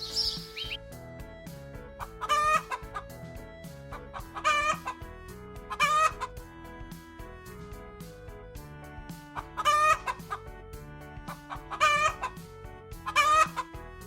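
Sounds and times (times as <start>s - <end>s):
soft background music: 0.0s - 14.0s
chicken calls: 2.0s - 3.2s, 3.9s - 5.1s, 5.7s - 6.4s, 9.3s - 10.4s, 11.2s - 12.4s, 13.0s - 13.8s.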